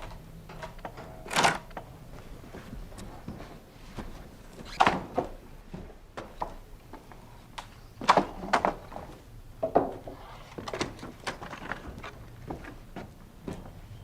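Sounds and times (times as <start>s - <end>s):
wooden knocks and clunks: 8.0s - 13.8s.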